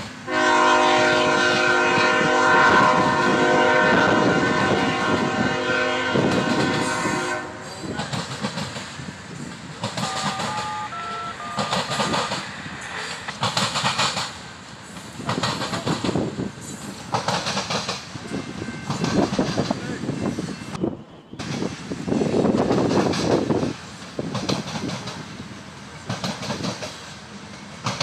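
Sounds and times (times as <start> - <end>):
train horn chord: 0.3 - 7.8, 10.0 - 11.8
train wheels clattering over rails: 6.1 - 10.8, 11.5 - 20.5, 21.4 - 28.0
short high tones: 10.0 - 11.8.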